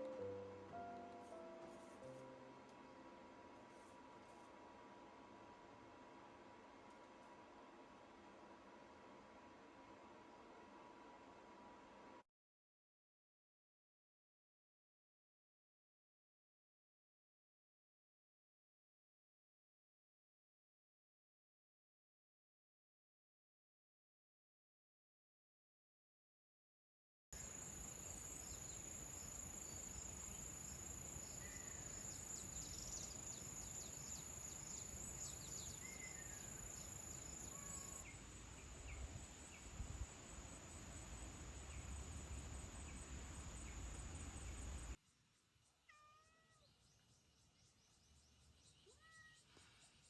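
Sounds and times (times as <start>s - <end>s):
cat meowing softly: 37.4s - 38.1s, 45.9s - 46.8s, 48.8s - 49.6s.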